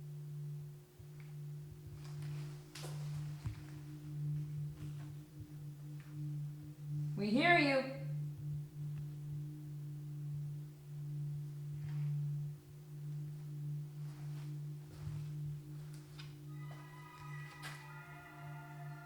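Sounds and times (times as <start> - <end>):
higher steady tones: 0.0 - 19.0
low electrical hum: 0.0 - 19.0.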